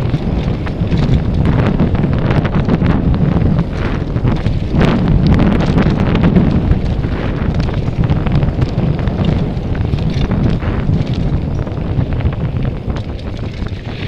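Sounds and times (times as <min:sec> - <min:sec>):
bike clicks and rattles: 0:00.0 - 0:14.0
wind over microphone: 0:00.0 - 0:14.0.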